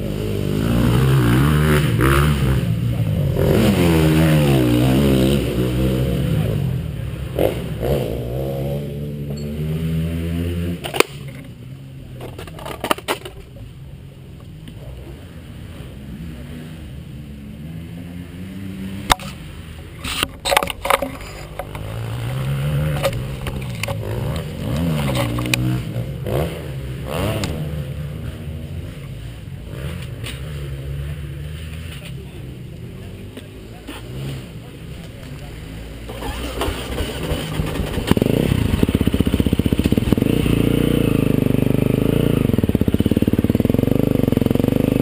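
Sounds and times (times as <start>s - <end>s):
motorcycle engine idling and revving: 0.0s - 45.0s
sharp clicks and knocks: 20.0s - 25.7s.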